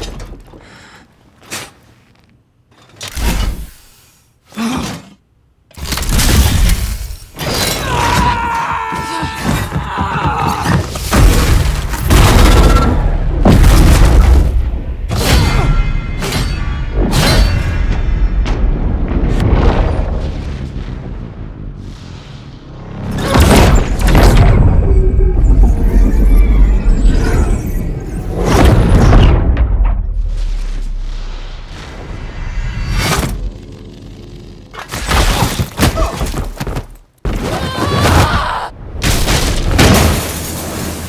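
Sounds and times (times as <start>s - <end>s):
heavy punches and booming impacts: 8.0s - 21.9s
glass shattering: 39.2s - 41.0s.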